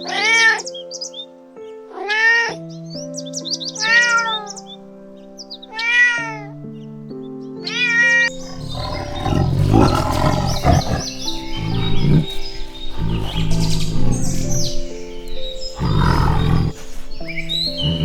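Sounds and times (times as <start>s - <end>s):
background music: 0.0s - 18.0s
cat meowing: 2.0s - 2.6s, 3.8s - 4.6s, 5.7s - 6.5s.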